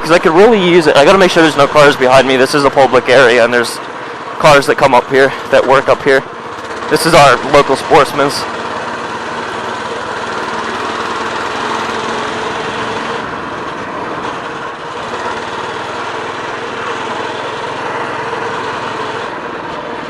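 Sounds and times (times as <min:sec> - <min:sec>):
minibike engine running: 0:00.0 - 0:20.0.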